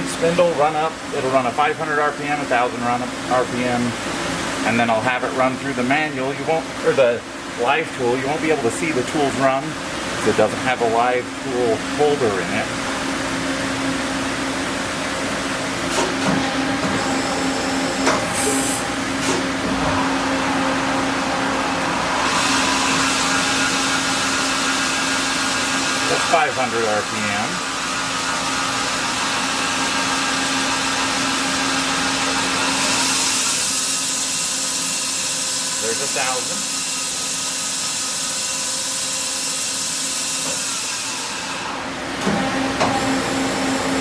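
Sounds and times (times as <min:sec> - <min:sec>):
lathe humming: 0:12.8 - 0:44.0
air hiss: 0:21.5 - 0:26.4.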